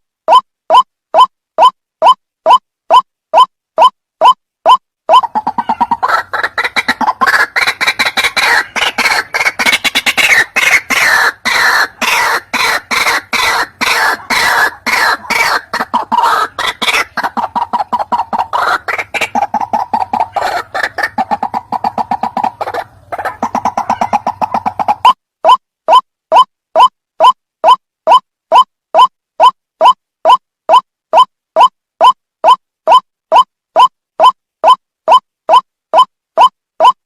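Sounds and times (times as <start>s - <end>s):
bird calling: 5.1s - 25.2s.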